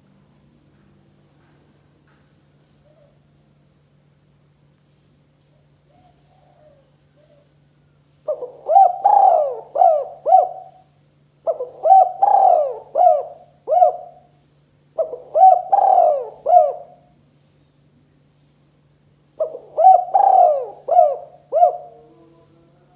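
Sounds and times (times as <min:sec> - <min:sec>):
dove cooing: 0:05.9 - 0:07.5, 0:08.2 - 0:14.3, 0:15.0 - 0:17.1, 0:19.4 - 0:22.9.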